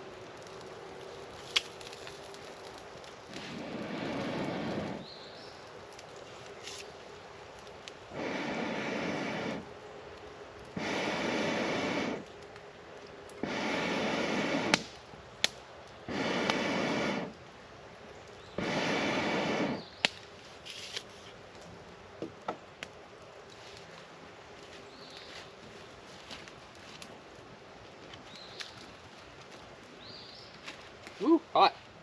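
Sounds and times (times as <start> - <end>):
burning wood popping: 0.0 - 32.0
person blowing on embers: 0.4 - 7.0, 7.6 - 9.9, 10.6 - 12.6, 13.2 - 15.1, 15.9 - 17.5, 18.4 - 21.5.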